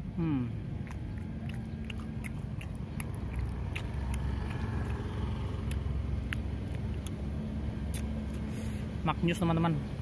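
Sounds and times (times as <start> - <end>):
person chewing: 0.0 - 8.9
low steady rumble: 0.0 - 10.0
mouth clicks: 0.2 - 7.2.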